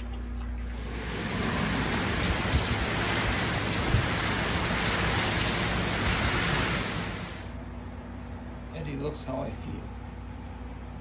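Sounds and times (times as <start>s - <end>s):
heavy rain on wooden deck: 0.7s - 7.6s.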